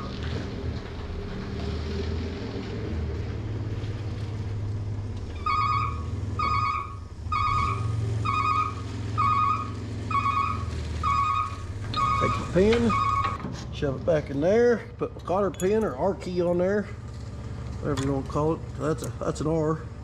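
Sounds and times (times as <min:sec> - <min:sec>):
truck engine running: 0:00.0 - 0:20.0
electronic warning beep: 0:05.4 - 0:13.4.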